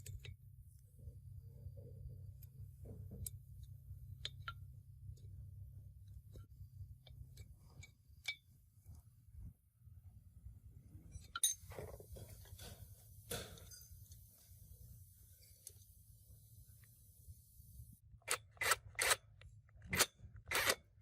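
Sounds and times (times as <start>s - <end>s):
steady low hum: 0.0s - 18.0s
clinks of hard objects: 11.1s - 14.2s.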